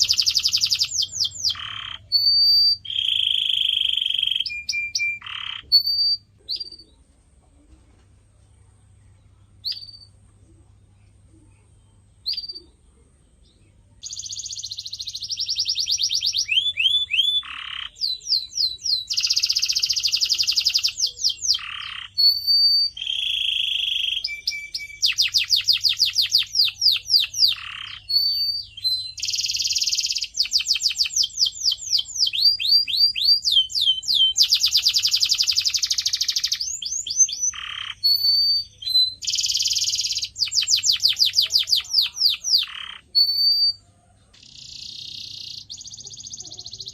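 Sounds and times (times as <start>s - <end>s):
canary singing: 0.0s - 7.4s, 9.0s - 10.6s, 11.3s - 46.9s.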